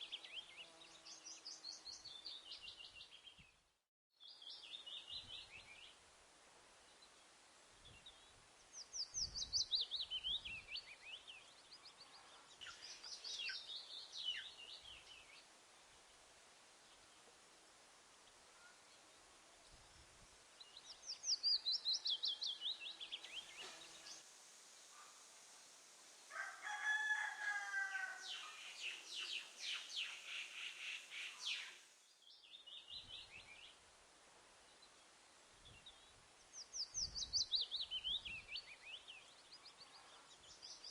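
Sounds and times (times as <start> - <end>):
bird crowing call: 26.3 - 28.9.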